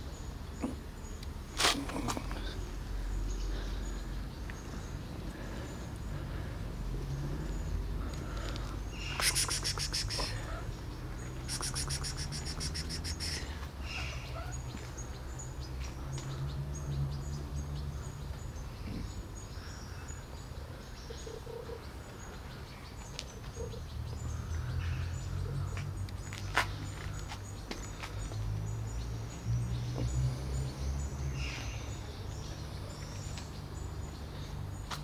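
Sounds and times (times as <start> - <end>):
faint bird chirps: 8.9 - 15.1.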